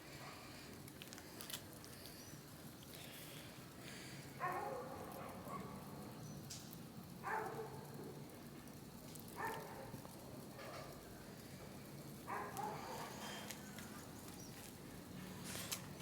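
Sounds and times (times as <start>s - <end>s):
dog barking: 4.4s - 5.7s, 7.2s - 7.8s, 9.4s - 9.9s, 12.3s - 13.2s.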